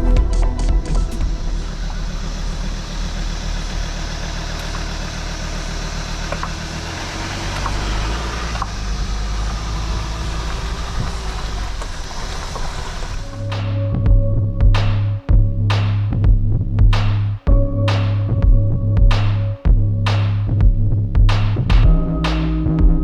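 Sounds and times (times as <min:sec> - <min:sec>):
vehicle engine running: 0:00.0 - 0:17.7.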